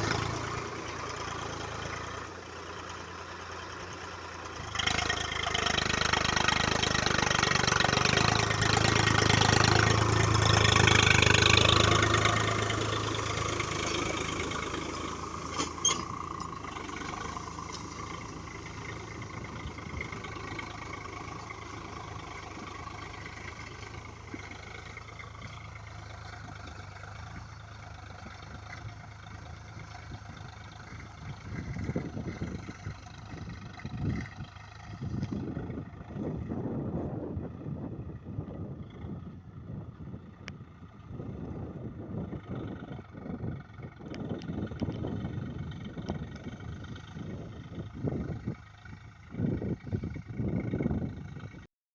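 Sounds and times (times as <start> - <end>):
tractor diesel engine running: 0.0 - 51.7
wind gusting on microphone: 18.0 - 23.4, 28.1 - 51.7.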